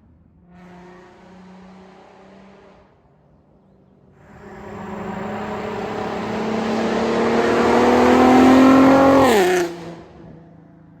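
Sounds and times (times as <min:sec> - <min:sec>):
car engine accelerating past: 0:04.2 - 0:10.2.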